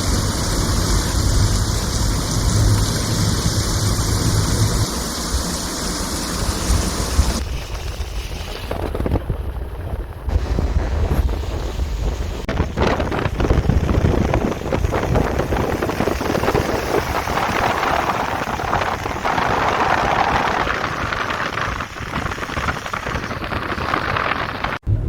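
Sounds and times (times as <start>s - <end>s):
vehicle hissing on wet road: 0.0s - 7.4s, 13.2s - 24.8s
heavy rain: 0.0s - 24.9s
low rumble: 0.0s - 25.0s.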